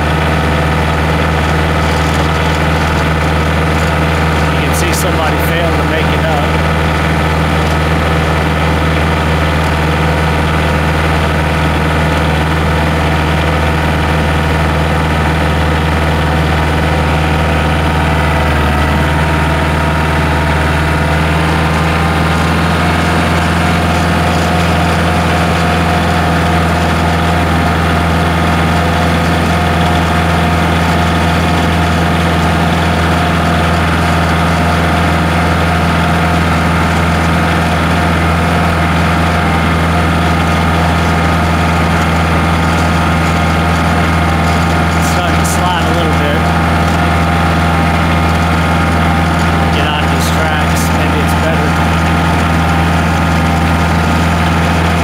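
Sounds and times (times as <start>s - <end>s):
vehicle engine droning: 0.0s - 55.0s.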